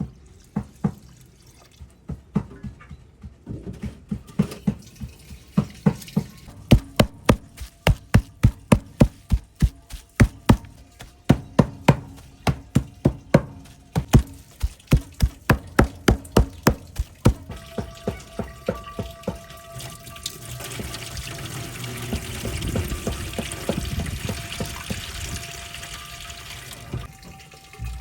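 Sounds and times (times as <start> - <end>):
knife chopping on wooden board: 6.5 - 17.5.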